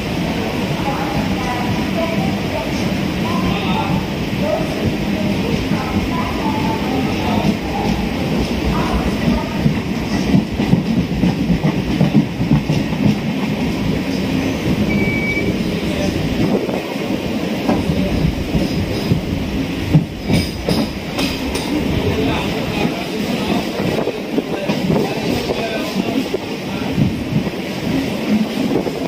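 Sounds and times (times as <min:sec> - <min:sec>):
electric train rumbling: 0:00.0 - 0:29.0.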